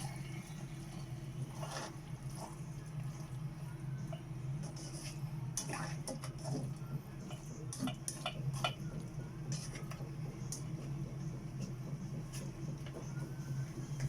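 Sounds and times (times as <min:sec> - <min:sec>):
steady low hum: 0:00.0 - 0:14.0
utensils clinking against dishes: 0:07.3 - 0:08.9.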